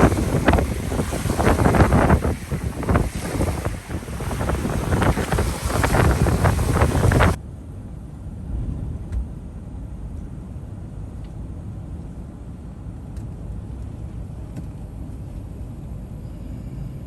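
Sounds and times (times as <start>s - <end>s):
surf: 0.0s - 7.4s
wind buffeting microphone: 0.0s - 7.4s
steady low rumble: 0.0s - 17.0s.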